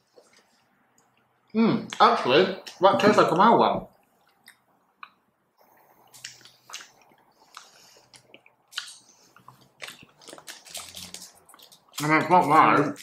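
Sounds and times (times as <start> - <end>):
wet mouth chewing clicks: 6.1 - 12.0.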